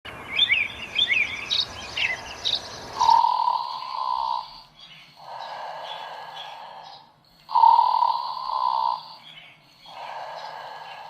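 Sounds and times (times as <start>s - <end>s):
birds chirping: 0.1s - 11.0s.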